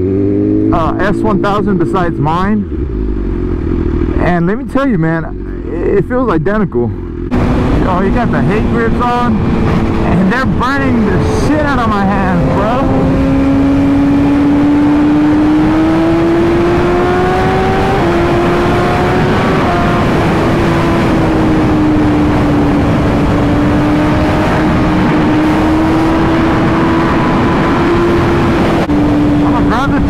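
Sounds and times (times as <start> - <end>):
motorcycle engine at speed: 0.0 - 30.0
road noise: 0.0 - 30.0
wind rushing: 7.2 - 30.0.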